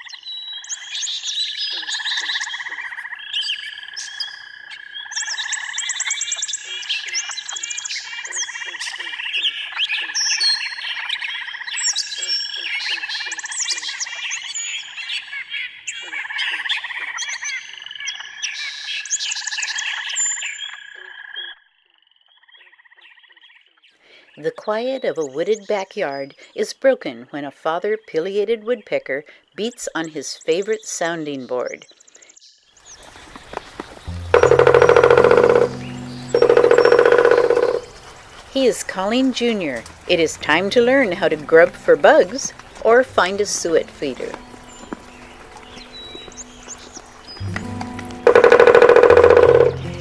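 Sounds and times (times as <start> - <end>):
birds chirping and trilling: 32.9 - 38.5.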